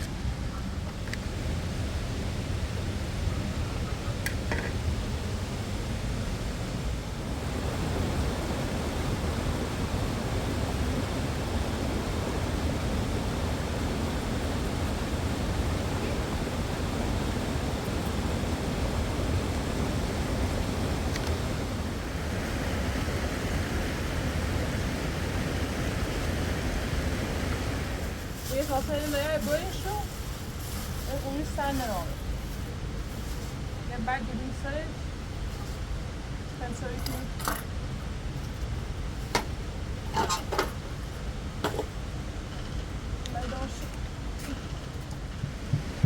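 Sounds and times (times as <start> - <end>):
river water rushing: 4.9 - 28.4.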